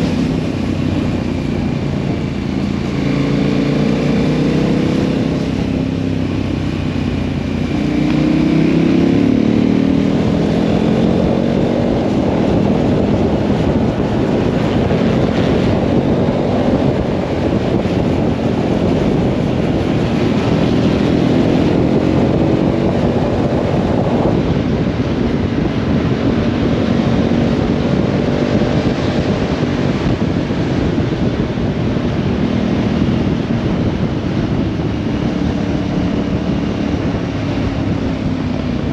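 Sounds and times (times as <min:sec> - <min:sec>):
heavy wind noise: 0:00.0 - 0:38.9
motorcycle engine revving: 0:00.0 - 0:38.9.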